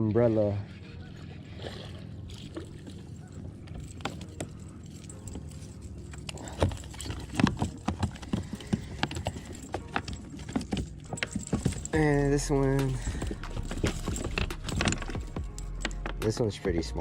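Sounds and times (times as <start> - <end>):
fishing gear knocking on kayak: 6.4 - 16.4
steady low rumble: 12.0 - 16.8.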